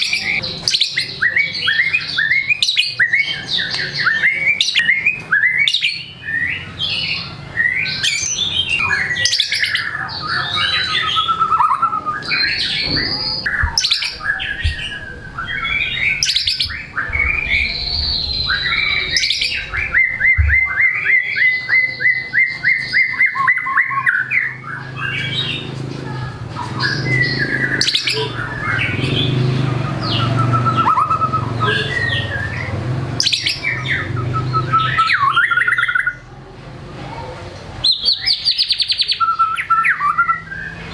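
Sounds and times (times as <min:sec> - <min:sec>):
songbird singing: 0:00.0 - 0:36.4, 0:37.5 - 0:40.9.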